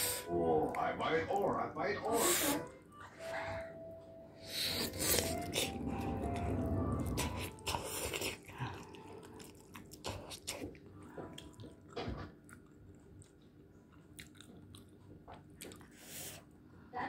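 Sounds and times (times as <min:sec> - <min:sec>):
person chewing noodles: 0:04.4 - 0:16.5.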